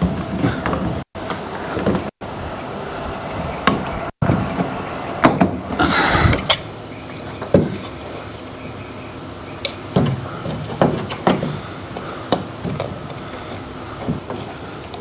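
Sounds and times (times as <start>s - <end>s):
objects knocking and clunking: 0.0s - 2.2s, 3.6s - 6.6s, 7.3s - 8.3s, 9.7s - 15.0s.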